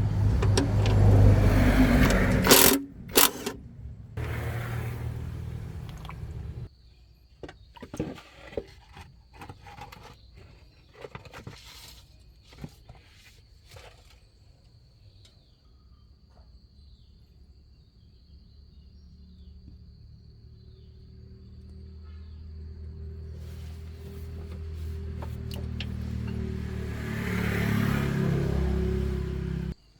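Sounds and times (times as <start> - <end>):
handling clicks and knocks: 0.0 - 3.6, 24.3 - 26.9
car engine running: 0.0 - 6.7, 23.3 - 29.8.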